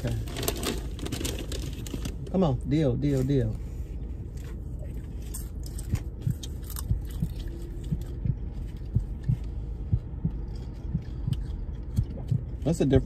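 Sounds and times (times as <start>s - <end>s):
low steady hum: 0.0s - 13.0s
people chewing popcorn: 4.4s - 13.0s.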